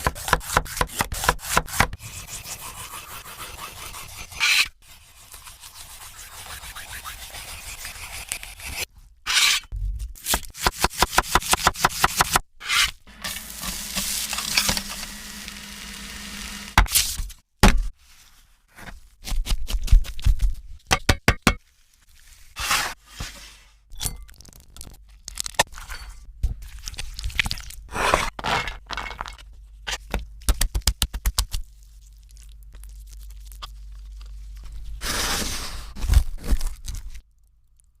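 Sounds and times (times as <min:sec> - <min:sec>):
food crunching: 0:31.5 - 0:34.8.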